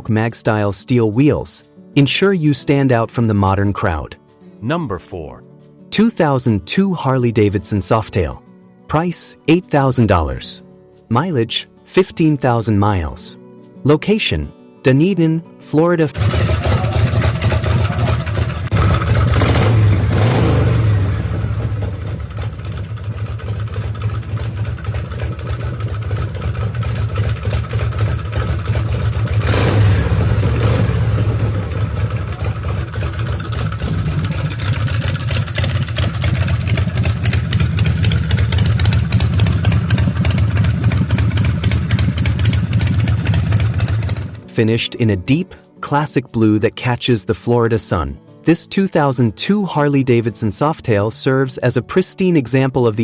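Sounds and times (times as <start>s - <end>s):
motorcycle engine rumbling and revving: 16.2s - 44.4s.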